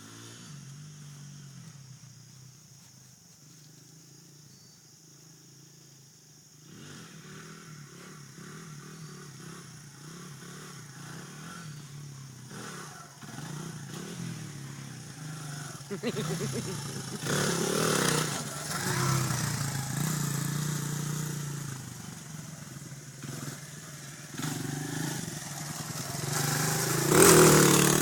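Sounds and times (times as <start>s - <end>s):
dirt bike engine revving: 6.6s - 28.0s.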